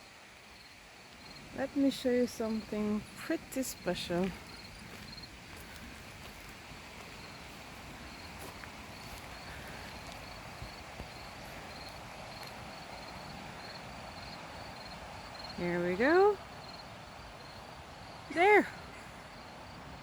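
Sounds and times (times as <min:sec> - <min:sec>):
crickets chirping: 0:00.0 - 0:20.0
river water flowing: 0:00.0 - 0:20.0.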